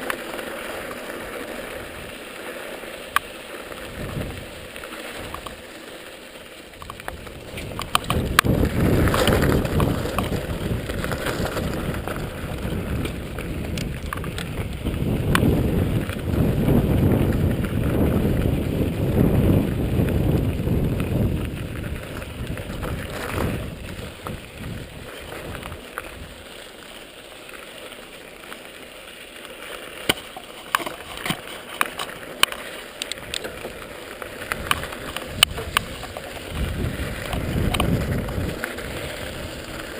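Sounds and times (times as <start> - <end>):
bike tyre and frame rattle: 0.0 - 39.9
wind rushing on microphone: 3.9 - 4.6, 6.8 - 26.3, 34.4 - 39.8.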